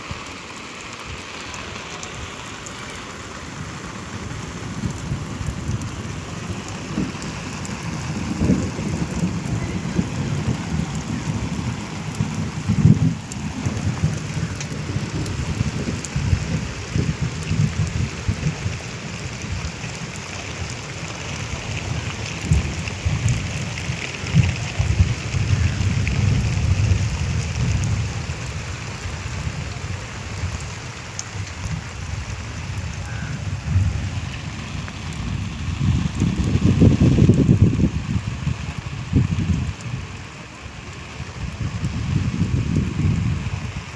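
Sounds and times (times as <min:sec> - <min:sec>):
rain falling: 0:00.0 - 0:43.9
low rumble: 0:21.1 - 0:38.3.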